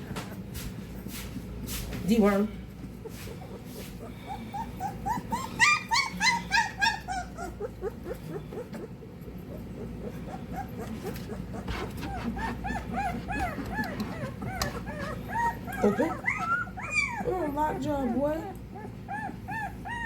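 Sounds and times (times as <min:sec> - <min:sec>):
puppy whimpering and yelping: 0:03.0 - 0:20.0.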